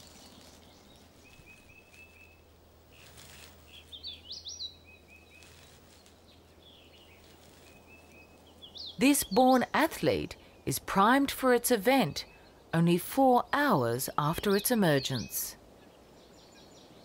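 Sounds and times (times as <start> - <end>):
bird chirps: 0.1 - 9.8.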